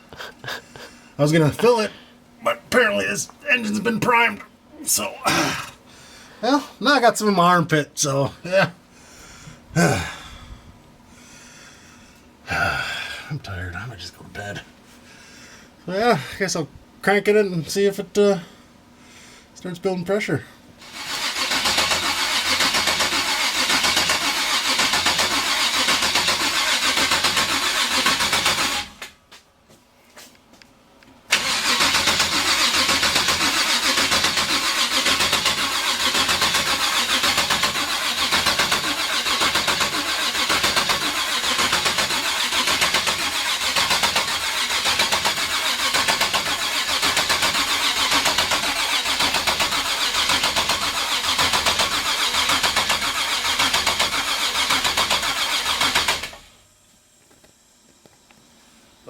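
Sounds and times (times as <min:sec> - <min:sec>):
engine starter cranking: 0:20.8 - 0:29.2, 0:31.3 - 0:56.6.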